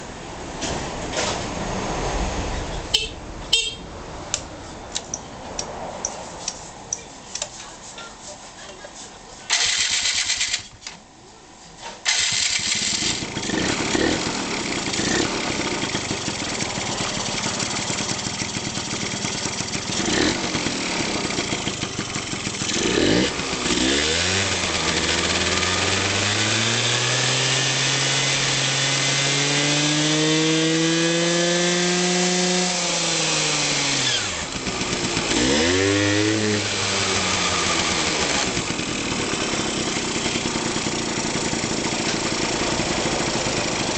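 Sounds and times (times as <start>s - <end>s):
engine starting and revving: 9.5s - 10.7s, 12.0s - 43.9s.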